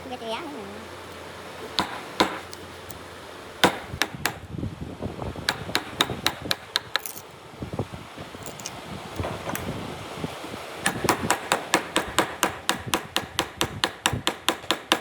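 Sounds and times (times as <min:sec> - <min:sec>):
hammer striking wood: 0:01.8 - 0:02.5, 0:03.6 - 0:04.5, 0:05.5 - 0:07.2, 0:10.8 - 0:15.0.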